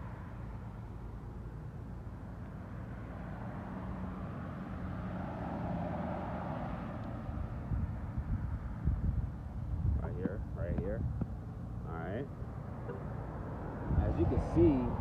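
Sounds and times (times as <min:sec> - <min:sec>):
roadside traffic rush: 0:00.0 - 0:15.0
wind buffeting microphone: 0:07.2 - 0:15.0.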